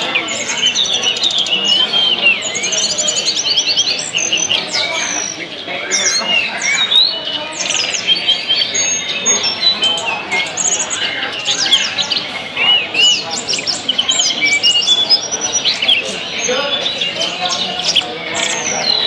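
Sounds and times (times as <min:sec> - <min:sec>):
songbirds singing: 0:00.0 - 0:19.0.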